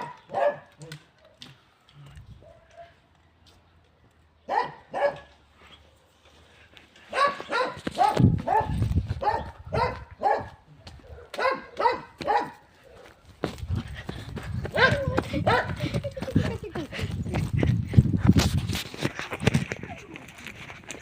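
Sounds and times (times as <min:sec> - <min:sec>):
dog barking: 0:00.0 - 0:01.4, 0:02.4 - 0:03.0, 0:04.5 - 0:05.3, 0:07.1 - 0:13.2, 0:14.7 - 0:15.8.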